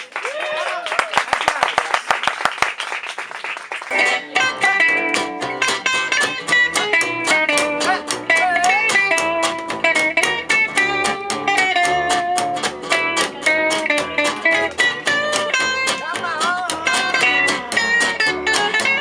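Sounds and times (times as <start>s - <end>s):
acoustic guitar strumming: 3.9s - 19.0s
lead melody with bending notes: 3.9s - 19.0s.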